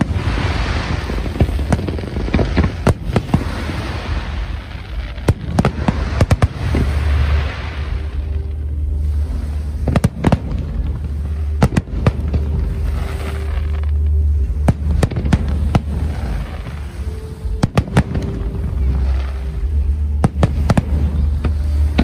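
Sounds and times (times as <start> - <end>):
fireworks bangs: 0.0 - 22.0
fireworks crackling: 0.0 - 22.0
steady low rumble: 0.0 - 22.0.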